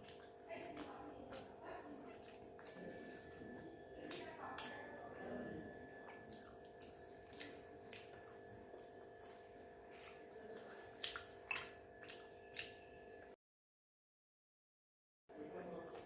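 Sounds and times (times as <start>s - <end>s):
wet chewing clicks: 0.0s - 5.0s, 6.0s - 12.8s
faint hum: 0.0s - 11.3s.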